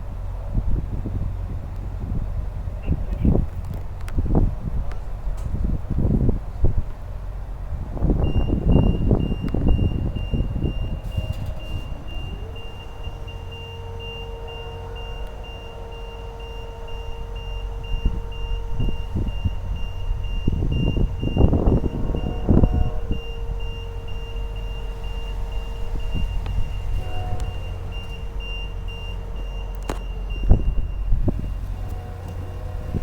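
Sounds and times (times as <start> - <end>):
engine humming: 0.0 - 33.0
vehicle reverse alarm beeping: 7.3 - 33.0.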